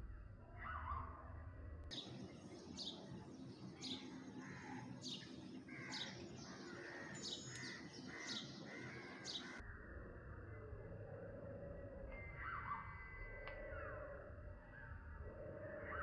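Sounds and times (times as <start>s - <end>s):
small birds chirping: 1.9s - 9.6s.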